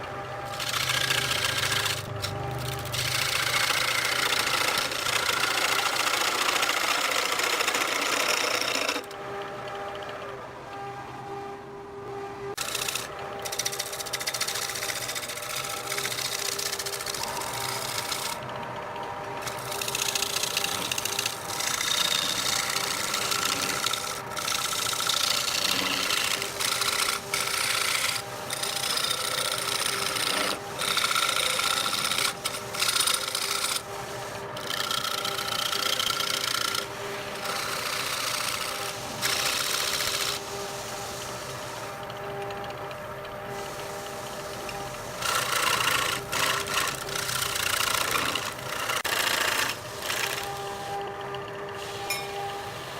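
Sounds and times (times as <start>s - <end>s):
wood lathe motor hum: 0.0s - 52.9s
tool rasping against wood: 0.5s - 9.1s, 12.6s - 18.4s, 19.4s - 34.0s, 34.6s - 40.6s, 45.2s - 50.9s.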